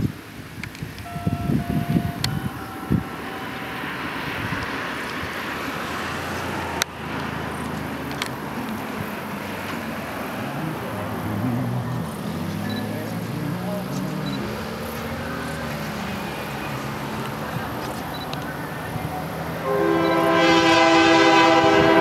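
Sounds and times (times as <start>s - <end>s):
locomotive horn: 1.0s - 6.7s, 19.6s - 22.0s
diesel locomotive engine running: 1.0s - 22.0s.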